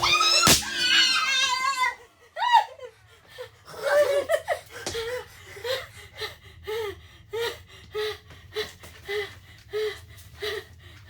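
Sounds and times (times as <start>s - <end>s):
woman panting: 2.4s - 11.0s.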